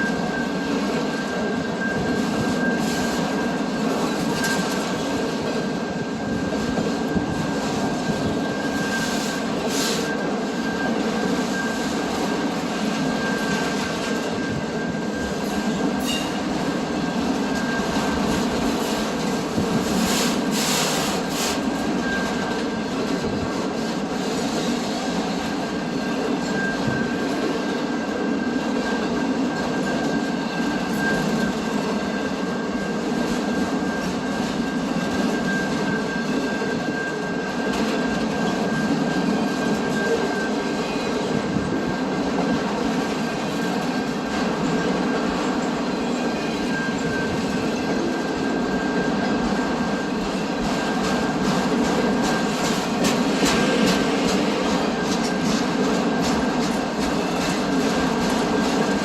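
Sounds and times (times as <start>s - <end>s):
sharp clicks of train wheels: 0.0s - 59.0s
train wheels rumbling on rails: 0.0s - 59.0s
high wheel squeal: 5.9s - 19.0s, 19.6s - 22.9s, 24.2s - 29.0s, 43.0s - 59.0s.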